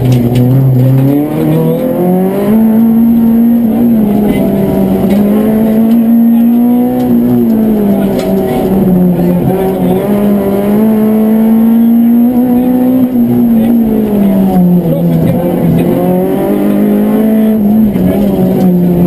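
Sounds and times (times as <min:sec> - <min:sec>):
car engine at high revs: 0:00.0 - 0:19.0
road noise: 0:00.0 - 0:19.0.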